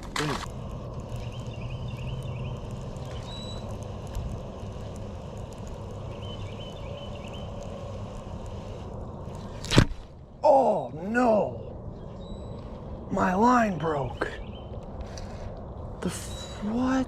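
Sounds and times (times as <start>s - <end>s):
steady low rumble: 0.0s - 17.0s
bird chirping: 1.0s - 4.0s, 5.8s - 8.8s, 10.4s - 15.3s, 16.0s - 17.0s.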